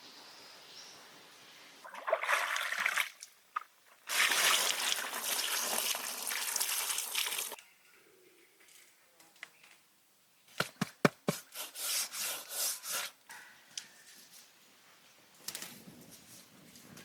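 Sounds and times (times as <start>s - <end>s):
liquid being poured: 1.8s - 3.2s, 4.0s - 7.6s.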